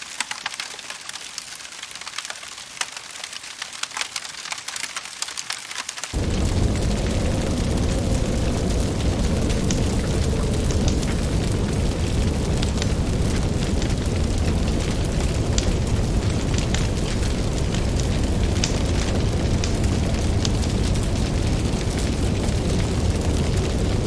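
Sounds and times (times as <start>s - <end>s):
wood fire crackling and popping: 0.1s - 24.0s
low rumble of burning fire: 6.1s - 24.0s.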